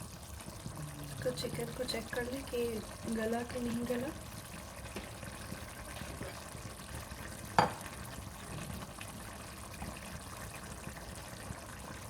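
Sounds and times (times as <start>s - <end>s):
curry simmering and sizzling: 0.0s - 12.0s
knock against pot: 7.6s - 7.9s.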